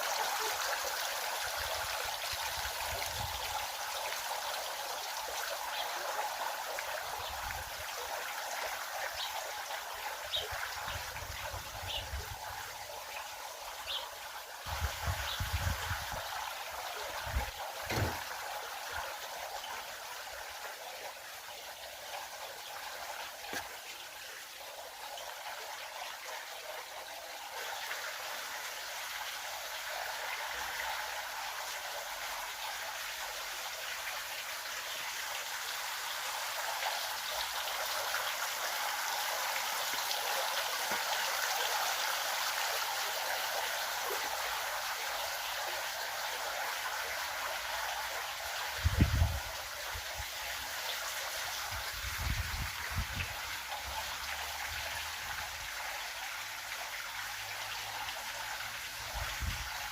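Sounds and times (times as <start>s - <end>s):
stream water flowing: 0.0s - 59.9s
short low knocks: 17.9s - 18.3s.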